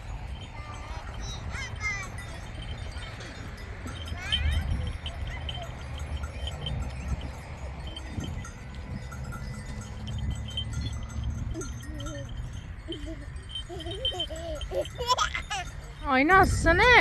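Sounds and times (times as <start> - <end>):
small bells tinkling: 0.0 - 17.0.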